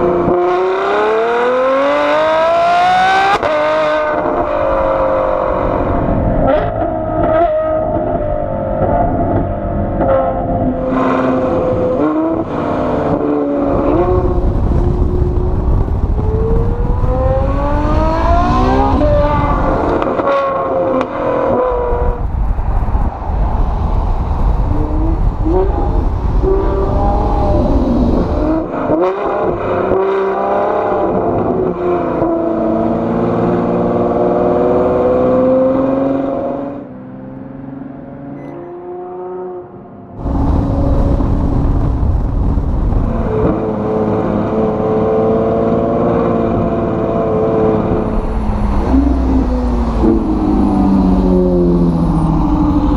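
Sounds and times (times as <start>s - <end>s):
car engine revving loudly: 0.0s - 7.5s, 10.8s - 22.1s, 43.0s - 52.9s.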